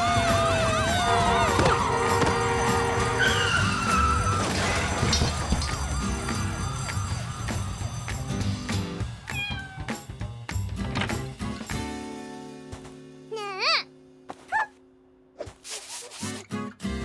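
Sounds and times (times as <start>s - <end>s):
cartoon music: 0.0s - 8.3s
squeaky sound effects: 1.1s - 7.6s.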